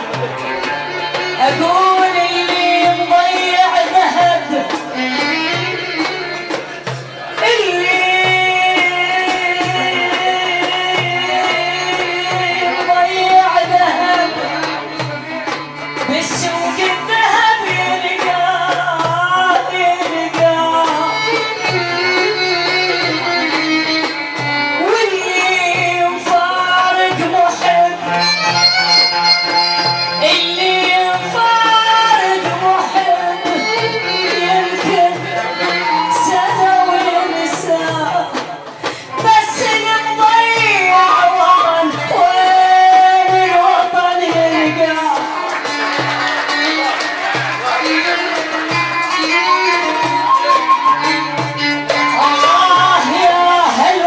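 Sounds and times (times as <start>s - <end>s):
bowed strings melody: 0.0s - 54.0s
hand drum strokes: 0.0s - 54.0s
woman singing: 1.1s - 6.6s, 7.3s - 15.3s, 15.9s - 29.1s, 29.7s - 45.9s, 47.9s - 54.0s
held melodic instrument note: 28.0s - 31.3s.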